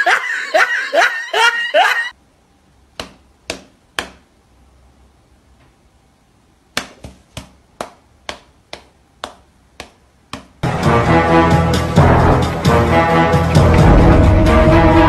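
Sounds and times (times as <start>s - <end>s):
cat paw slapping a hand: 6.8s - 10.6s.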